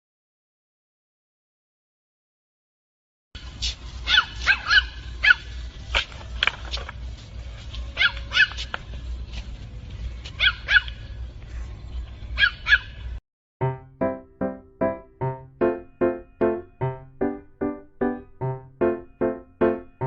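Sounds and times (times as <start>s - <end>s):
dog yapping: 4.0s - 5.5s, 8.0s - 8.7s, 10.4s - 11.0s, 12.4s - 13.0s.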